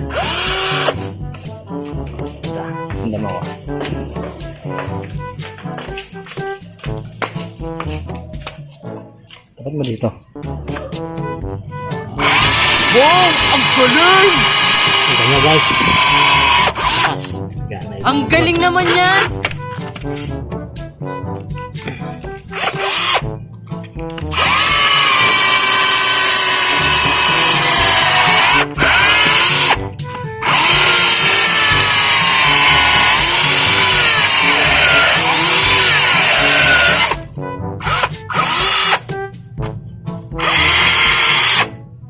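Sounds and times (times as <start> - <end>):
cordless drill drilling into concrete: 0.0 - 1.1, 12.2 - 17.2, 22.5 - 23.2, 24.3 - 29.8, 30.4 - 39.1, 40.4 - 41.7.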